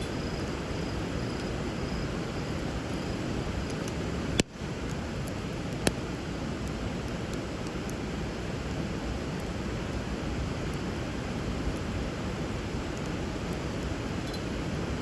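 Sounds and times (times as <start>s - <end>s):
wood fire crackling: 0.0s - 15.0s
sharp fire pops: 2.9s - 8.0s.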